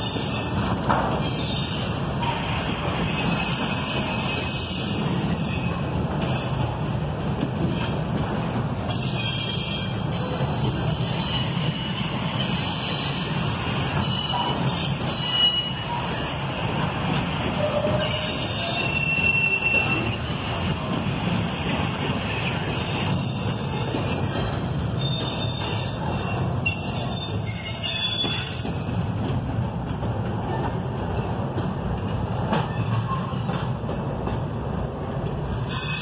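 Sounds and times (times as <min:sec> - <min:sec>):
train wheels rumbling on rail: 0:00.0 - 0:36.0
high wheel squeals: 0:17.6 - 0:20.3, 0:25.0 - 0:29.0.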